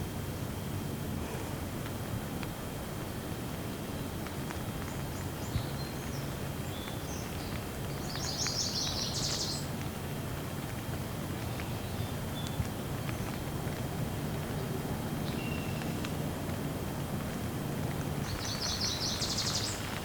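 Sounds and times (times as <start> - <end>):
rain falling: 0.3 - 20.0
birds chirping: 3.6 - 10.5, 11.2 - 13.6, 14.4 - 16.2, 18.2 - 20.0.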